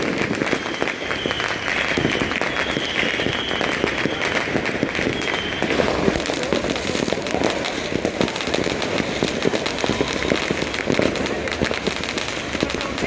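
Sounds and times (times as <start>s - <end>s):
firework whistles: 0.0s - 13.0s
fireworks crackling and banging: 0.0s - 13.0s.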